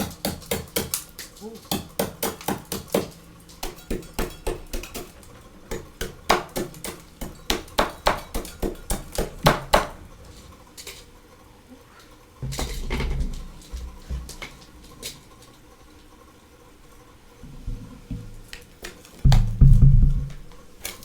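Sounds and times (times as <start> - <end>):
low muffled rumble: 19.2 - 20.8.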